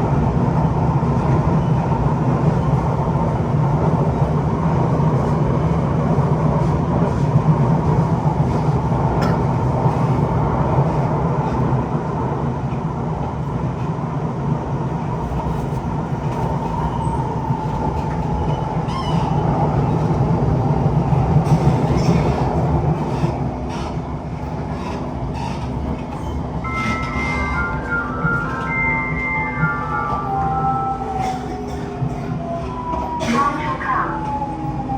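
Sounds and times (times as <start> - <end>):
train running along track: 0.0 - 34.9
faint train whine: 14.9 - 34.9.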